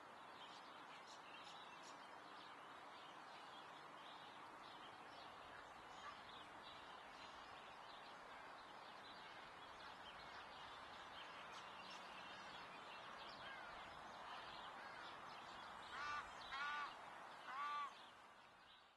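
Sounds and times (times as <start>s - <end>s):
loud bird calls: 15.8s - 18.0s.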